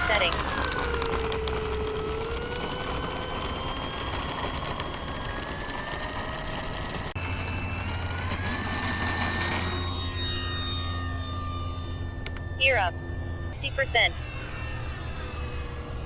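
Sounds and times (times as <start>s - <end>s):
electric jet fan whining: 0.0s - 16.0s
low hum: 0.0s - 16.0s.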